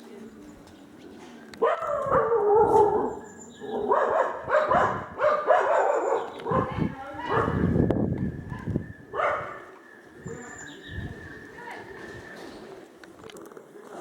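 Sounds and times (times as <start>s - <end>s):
dogs barking and yipping: 1.6s - 7.8s, 8.5s - 9.8s.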